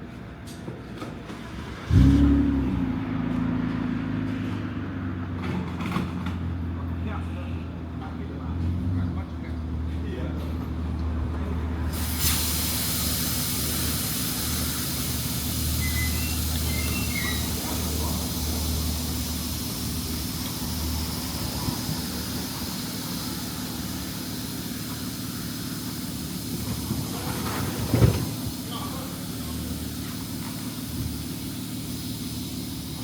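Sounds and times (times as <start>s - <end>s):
steady hiss: 12.0s - 33.0s.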